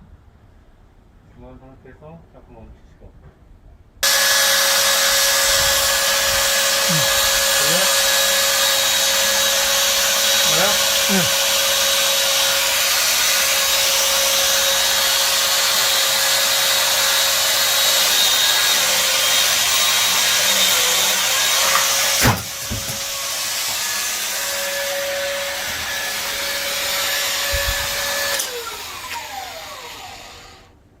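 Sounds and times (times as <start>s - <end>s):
tree trimming machine motor: 4.0s - 30.7s
sharp knock: 22.2s - 23.0s.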